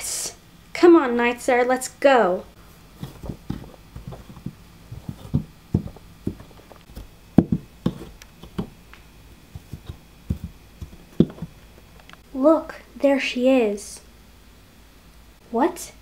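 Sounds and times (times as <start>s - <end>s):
toy horse hooves tapping: 3.0s - 8.8s, 9.6s - 11.6s.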